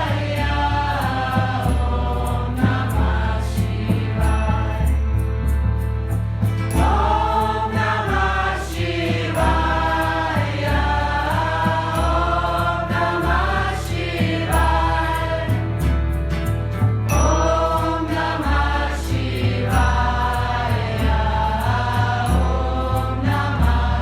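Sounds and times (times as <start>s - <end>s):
voices singing a chant: 0.0s - 5.5s, 6.6s - 16.2s, 17.1s - 24.0s
bass line: 0.0s - 24.0s
light percussion beat: 0.0s - 24.0s.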